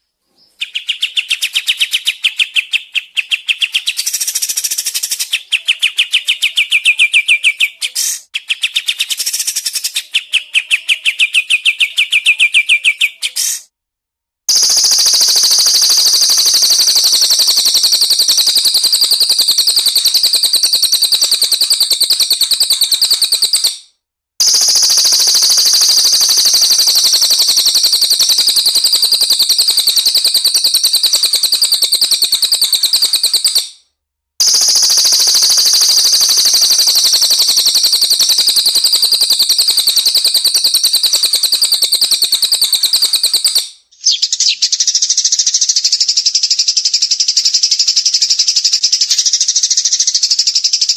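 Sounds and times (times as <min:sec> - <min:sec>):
duller birdsong: 0:00.0 - 0:04.3
songbird rapid trill: 0:00.4 - 0:13.6, 0:14.5 - 0:33.8, 0:34.4 - 0:50.9.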